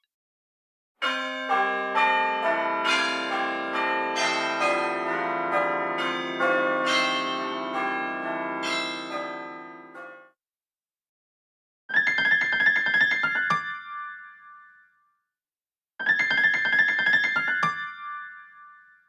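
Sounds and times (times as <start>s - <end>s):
bell-like ringtone chimes: 16.0s - 19.0s.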